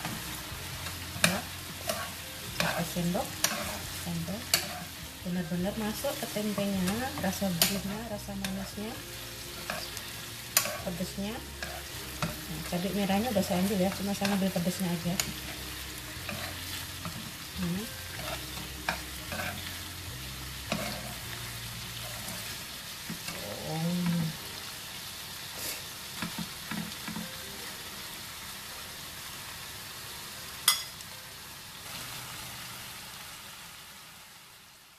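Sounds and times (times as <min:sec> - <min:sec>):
food sizzling in a frying pan: 0:00.0 - 0:34.9
metal spoon scraping a pan: 0:01.2 - 0:05.0, 0:09.6 - 0:19.9, 0:20.6 - 0:23.5.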